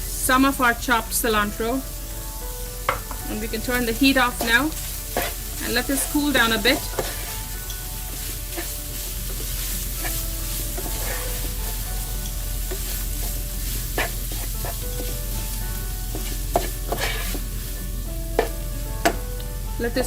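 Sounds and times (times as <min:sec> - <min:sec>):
food sizzling in a pan: 0:00.0 - 0:20.0
utensil clicking against pan: 0:16.1 - 0:17.4, 0:18.4 - 0:20.0.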